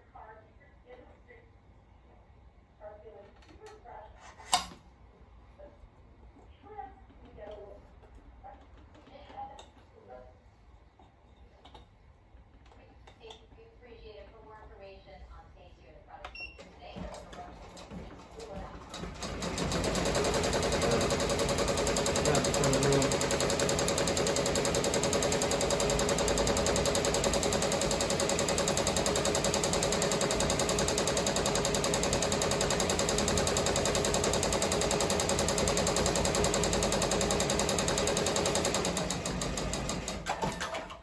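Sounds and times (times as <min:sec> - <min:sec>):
embroidery machine stitching: 0:17.7 - 0:41.0.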